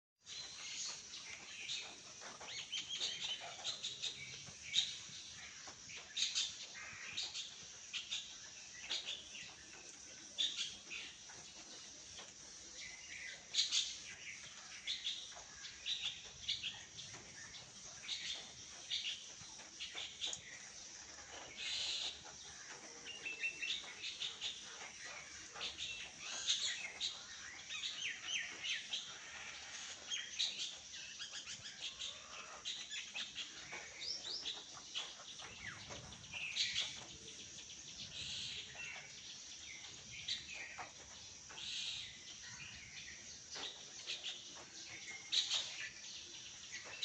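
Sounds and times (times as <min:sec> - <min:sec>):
steady high-pitched hiss: 0:00.2 - 0:47.0
birds chirping and whistling: 0:12.9 - 0:47.0.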